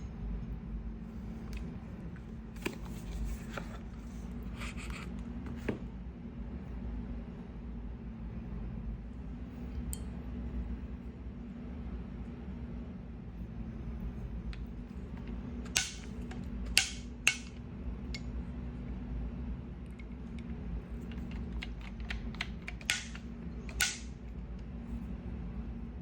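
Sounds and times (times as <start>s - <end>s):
steady low hum: 0.0s - 26.0s
clicks of small hard parts: 15.7s - 17.6s, 21.1s - 24.1s.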